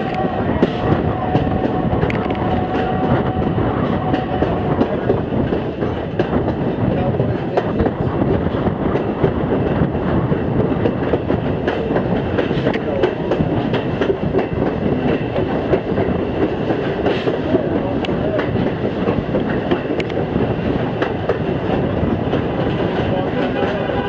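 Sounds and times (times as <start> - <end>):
train wheels rumbling on rails: 0.0 - 24.0
clicks and clacks of rails: 10.6 - 20.2.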